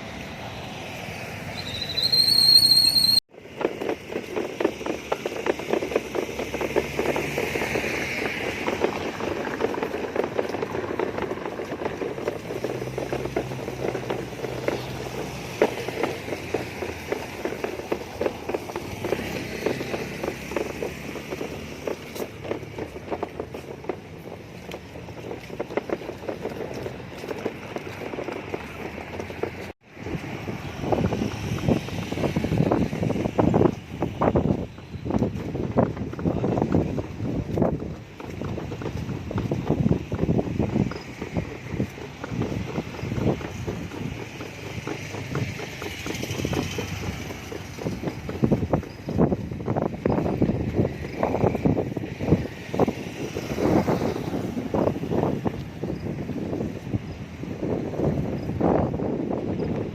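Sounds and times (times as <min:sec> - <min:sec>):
short rising whistle tone: 0:01.5 - 0:03.2.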